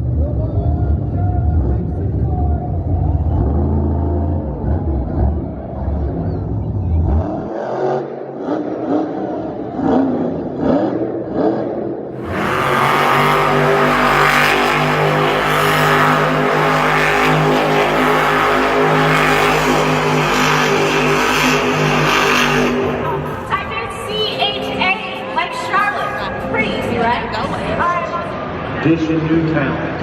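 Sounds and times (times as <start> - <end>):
high-revving engine drone: 0.0 - 30.0
monster truck engines revving: 0.0 - 30.0.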